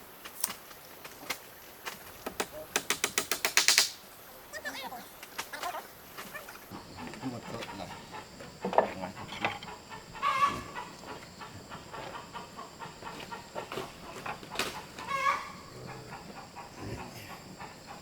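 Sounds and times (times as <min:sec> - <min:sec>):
chickens clucking: 0:05.0 - 0:18.0
knocks: 0:08.4 - 0:09.8
short chicken calls: 0:09.7 - 0:17.9.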